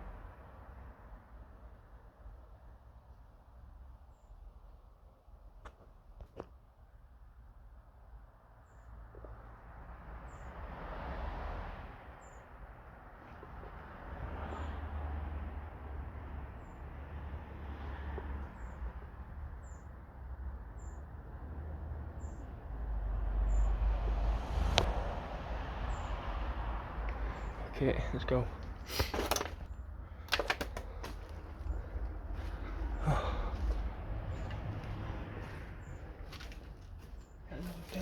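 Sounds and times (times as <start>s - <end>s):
low wind rumble: 22.6s - 37.5s
rustling and crunching movement: 27.3s - 38.0s.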